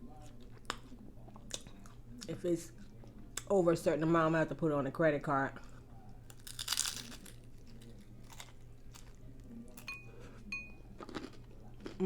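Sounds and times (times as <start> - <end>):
crunchy chewing: 5.6 - 12.0.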